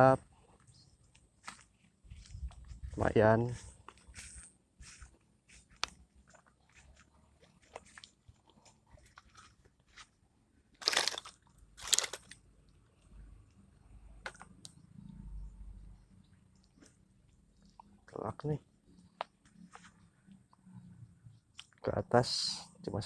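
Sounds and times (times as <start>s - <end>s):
small clicks: 10.8s - 12.8s.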